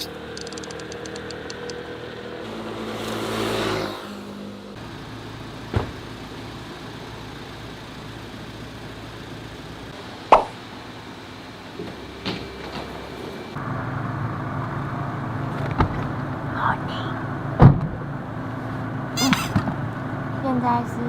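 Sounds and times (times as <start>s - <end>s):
motor vehicle running: 0.0s - 16.5s.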